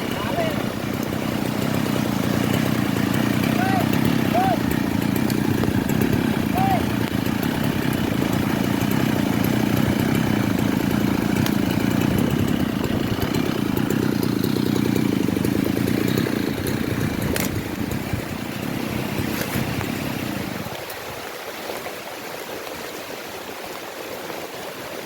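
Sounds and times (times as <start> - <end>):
chainsaw running: 0.0 - 21.3
sharp ticks: 0.9 - 1.2, 4.7 - 6.2, 7.0 - 12.6.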